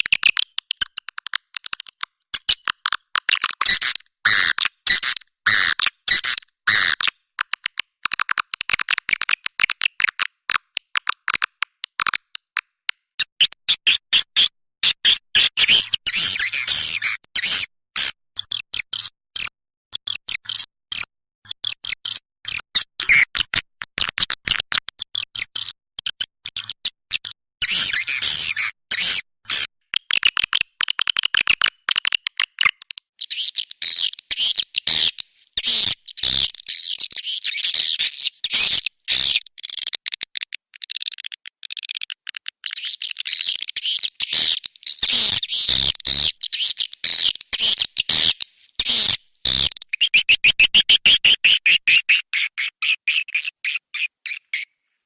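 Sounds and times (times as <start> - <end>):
swiftlets chirping and twittering: 33.2 - 39.7, 42.6 - 52.1.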